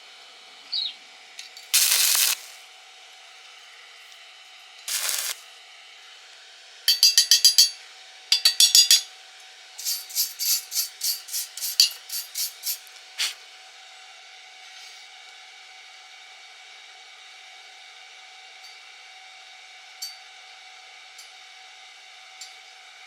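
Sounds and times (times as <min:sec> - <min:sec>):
hand tool scraping metal: 0:04.9 - 0:05.4, 0:09.8 - 0:13.4.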